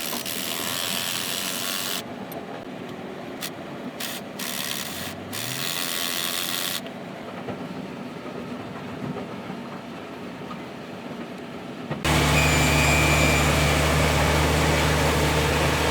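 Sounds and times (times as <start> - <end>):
workshop noise: 12.0 - 15.9
diesel engine idling: 12.1 - 15.9.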